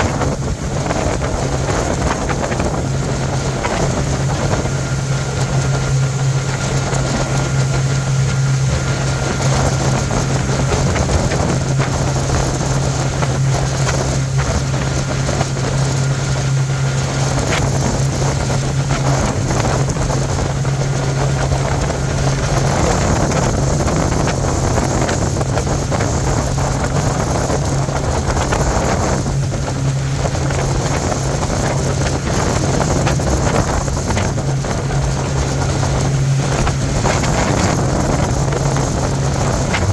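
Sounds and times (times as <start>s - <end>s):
motorboat engine droning: 0.0s - 39.9s
wind buffeting microphone: 0.0s - 39.9s.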